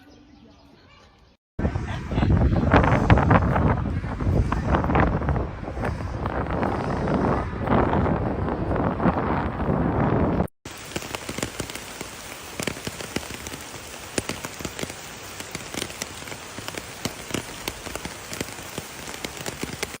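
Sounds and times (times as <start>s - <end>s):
loud rushing noise: 1.6s - 12.6s
rain pattering: 4.4s - 20.0s.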